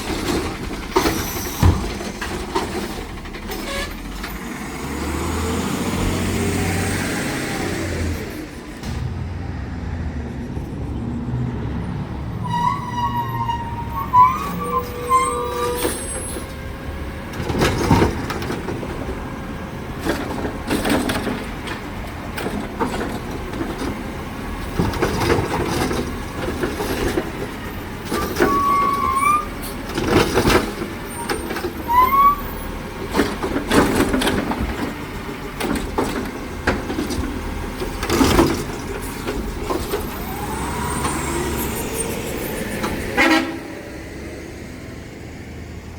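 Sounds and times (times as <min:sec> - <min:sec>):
knocks and clunks: 0:00.0 - 0:04.4, 0:08.7 - 0:11.4, 0:33.0 - 0:40.2
diesel engine running: 0:00.0 - 0:45.9
short squeals: 0:12.4 - 0:16.6, 0:28.2 - 0:29.7, 0:31.1 - 0:32.7.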